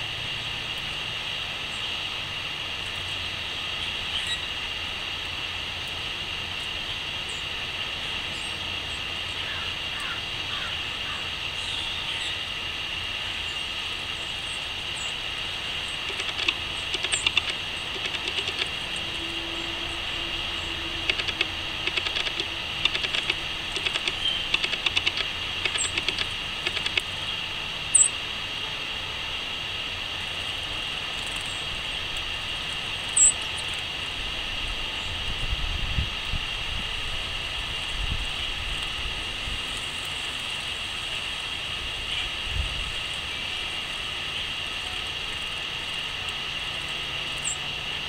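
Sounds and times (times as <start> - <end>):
high-pitched drone: 13.4 - 29.0
birds clicking and tapping: 15.0 - 27.3.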